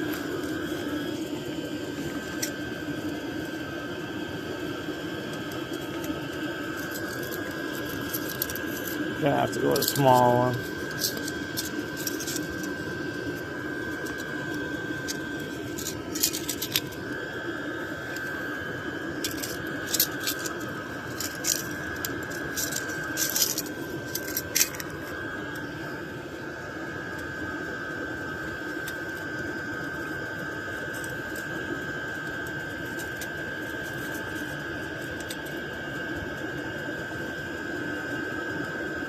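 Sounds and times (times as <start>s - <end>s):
background hum: 0.0s - 39.0s
thin high whine: 0.0s - 39.0s.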